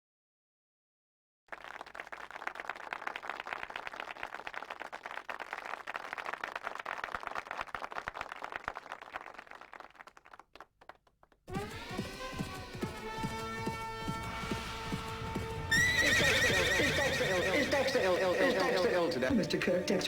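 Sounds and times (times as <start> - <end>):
audience applause: 1.5 - 11.0, 15.7 - 20.0.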